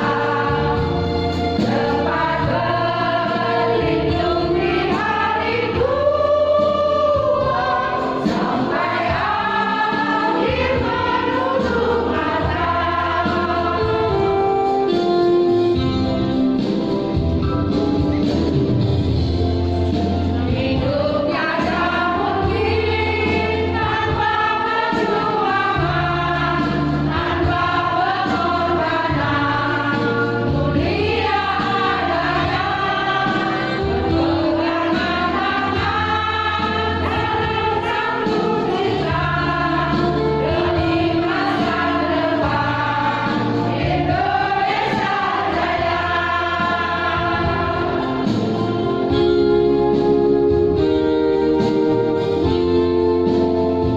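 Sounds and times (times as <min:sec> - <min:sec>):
choir singing: 0:00.0 - 0:14.3, 0:20.5 - 0:49.2.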